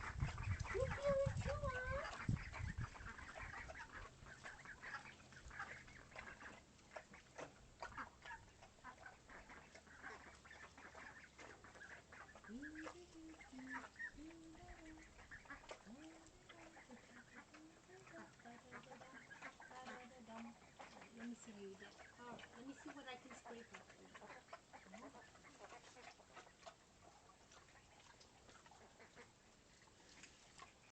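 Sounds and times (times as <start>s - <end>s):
ducklings peeping: 0.0s - 30.9s.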